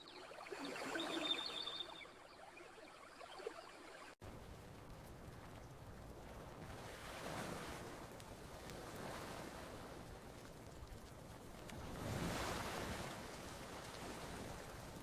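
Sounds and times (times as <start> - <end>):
faint campfire crackles: 0.0 - 15.0
ocean waves washing onto beach: 4.0 - 15.0.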